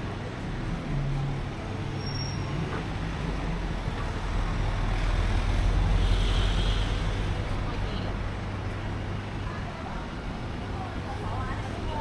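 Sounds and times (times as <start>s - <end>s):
vehicle approaching: 0.0s - 6.0s
road noise: 0.0s - 12.0s
vehicle engines humming: 0.0s - 12.0s.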